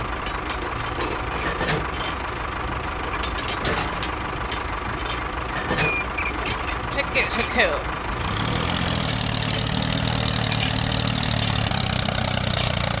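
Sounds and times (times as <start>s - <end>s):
clicks and knocks: 0.2s - 2.3s, 3.0s - 7.7s, 8.8s - 11.8s, 12.5s - 13.0s.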